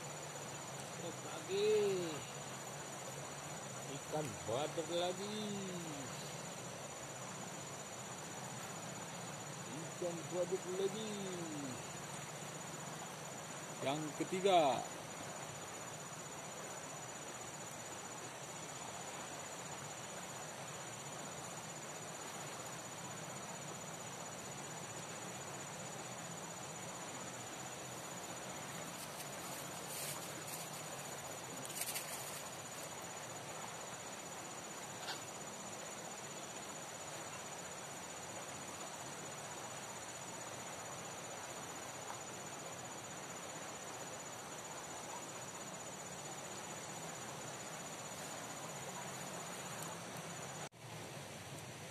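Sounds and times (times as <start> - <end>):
insects chirring: 0.0 - 51.9.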